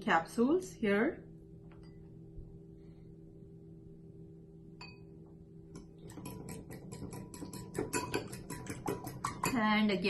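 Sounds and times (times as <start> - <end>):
fork whisking eggs in a bowl: 5.8 - 9.9
fork clinking on bowl: 6.1 - 9.6.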